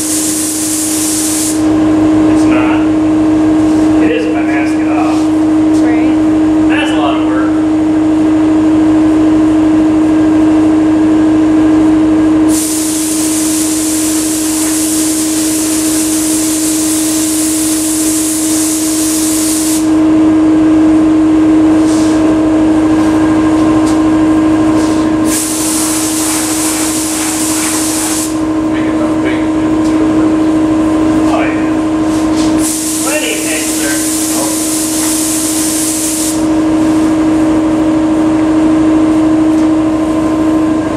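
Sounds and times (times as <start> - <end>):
paint spray gun hissing: 0.0 - 1.7, 12.5 - 19.9, 25.2 - 28.4, 32.6 - 36.5
steady motor hum: 0.0 - 40.9.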